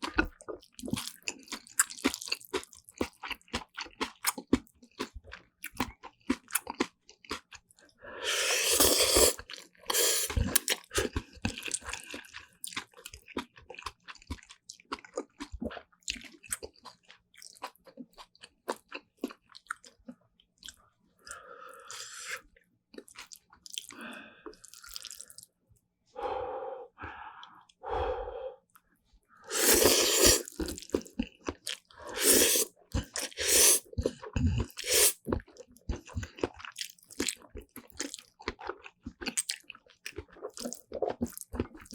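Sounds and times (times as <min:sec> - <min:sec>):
wet mouth clicks: 0:32.2 - 0:35.2.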